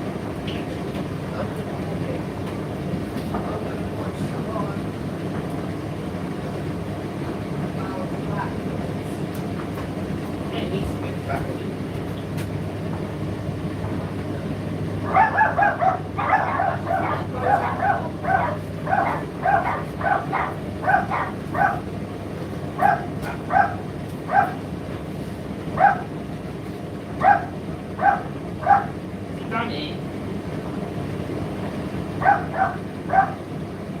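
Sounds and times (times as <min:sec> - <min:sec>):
tumble dryer humming: 0:00.0 - 0:34.0
dog barking: 0:15.0 - 0:21.9, 0:22.8 - 0:24.6, 0:25.8 - 0:26.1, 0:27.2 - 0:29.0, 0:32.2 - 0:33.4.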